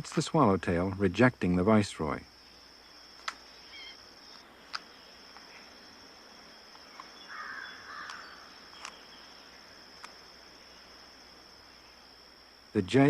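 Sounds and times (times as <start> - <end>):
crickets trilling: 0.0 - 13.0
sharp clicks: 3.2 - 3.5, 8.0 - 9.0.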